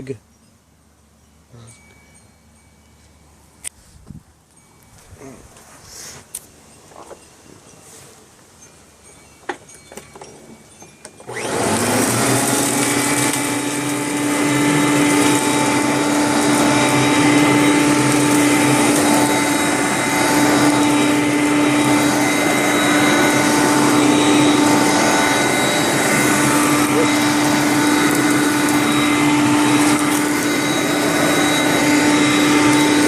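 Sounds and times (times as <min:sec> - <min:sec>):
upright vacuum cleaner running: 0:11.2 - 0:33.0.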